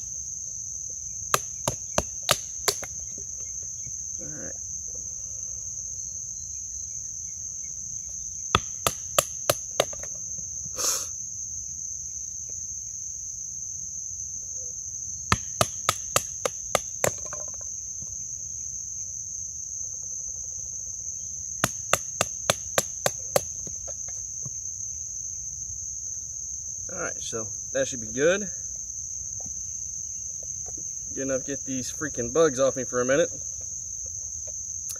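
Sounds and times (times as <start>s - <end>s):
insects trilling: 0.0s - 34.9s
knife chopping wood: 1.3s - 3.2s, 8.6s - 10.1s, 15.3s - 17.6s, 21.6s - 24.1s.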